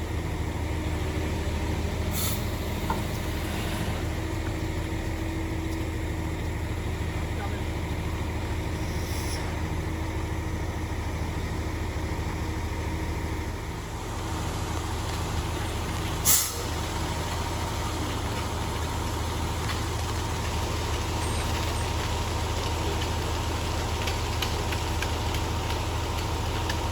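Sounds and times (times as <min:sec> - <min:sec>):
diesel engine running: 0:00.0 - 0:26.9
air brake hiss: 0:02.1 - 0:02.6, 0:08.9 - 0:09.6, 0:16.2 - 0:16.7.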